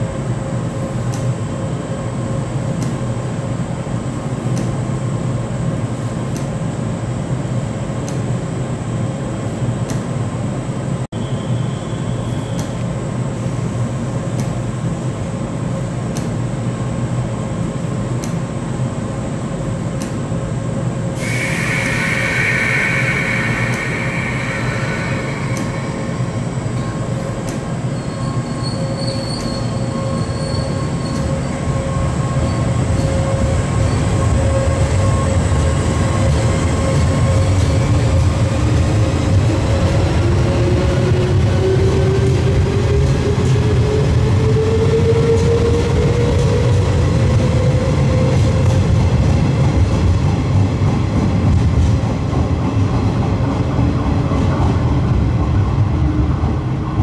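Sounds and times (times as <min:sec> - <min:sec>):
electric train equipment hum: 0:12.2 - 0:29.0
air hiss: 0:21.2 - 0:27.3
train pulling away: 0:21.2 - 0:49.5.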